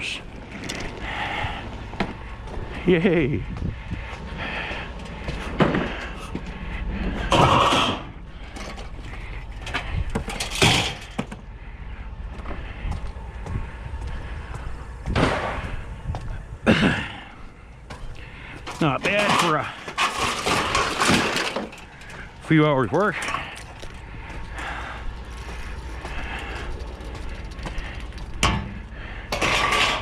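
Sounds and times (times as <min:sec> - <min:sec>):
low rumble: 0:00.0 - 0:30.0
scrap metal clanking and crashing: 0:04.7 - 0:11.4, 0:15.2 - 0:15.8, 0:16.7 - 0:30.0.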